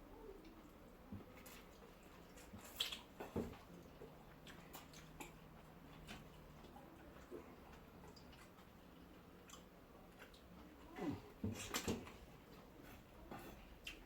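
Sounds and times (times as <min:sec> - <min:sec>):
person chewing: 0:01.3 - 0:03.3, 0:04.3 - 0:10.7, 0:13.5 - 0:14.0.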